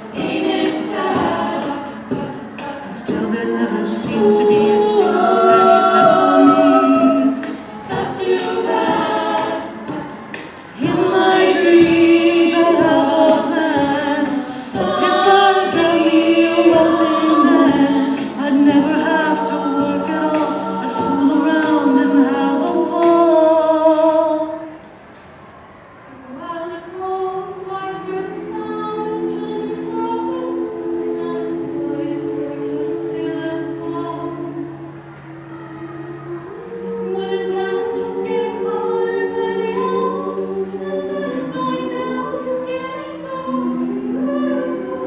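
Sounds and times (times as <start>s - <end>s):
vocal percussion ticks: 0.0s - 24.0s
a cappella group singing: 0.0s - 25.0s, 26.2s - 45.0s.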